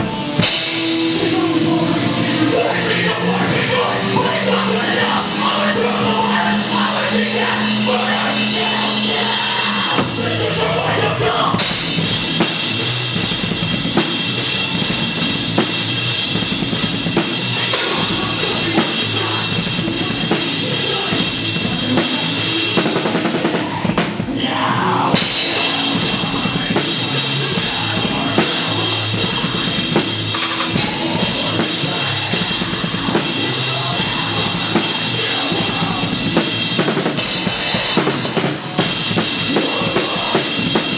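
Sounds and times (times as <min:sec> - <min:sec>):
live rock band playing loudly: 0:00.0 - 0:40.9
bass drum: 0:25.2 - 0:40.9.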